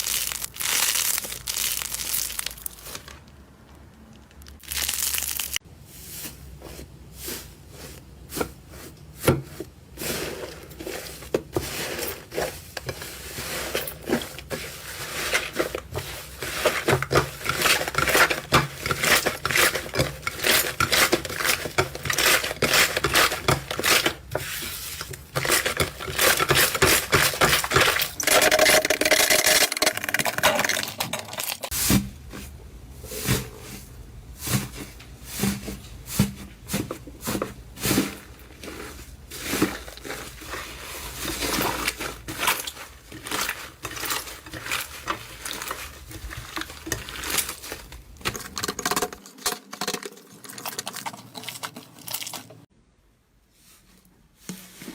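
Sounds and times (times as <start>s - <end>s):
slime crackling and popping: 0.0s - 3.1s, 4.4s - 5.6s.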